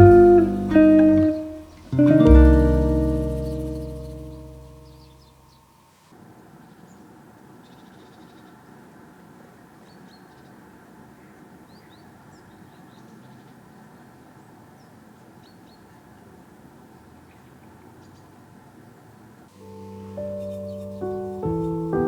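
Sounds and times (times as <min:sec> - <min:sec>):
music: 0:00.0 - 0:05.2, 0:19.6 - 0:22.0
small birds chirping: 0:00.0 - 0:05.6, 0:19.6 - 0:22.0
low background noise: 0:00.0 - 0:22.0.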